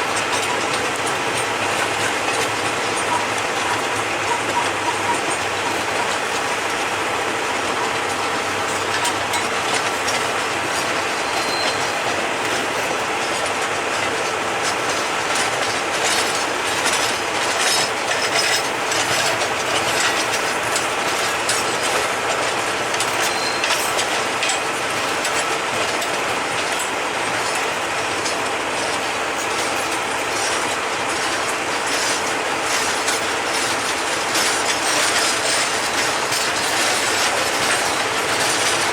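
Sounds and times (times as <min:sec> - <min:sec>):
freight train cars rolling past: 0:00.0 - 0:38.9
wheels clicking over rail joints: 0:00.0 - 0:38.9.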